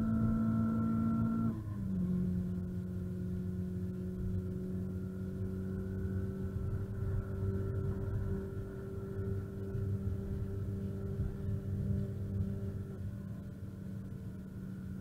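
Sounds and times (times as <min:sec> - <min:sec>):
car engine droning in cabin: 0:00.0 - 0:15.0
low road rumble: 0:00.0 - 0:15.0.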